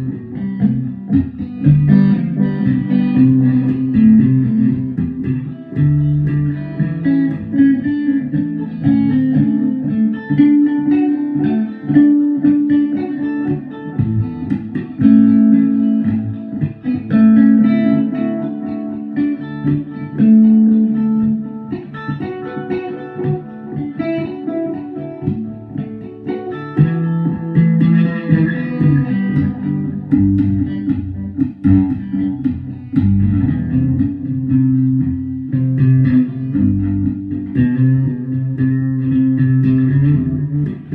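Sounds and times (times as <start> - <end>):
plucked guitar notes: 0.0 - 40.9
low bass notes: 27.3 - 40.9.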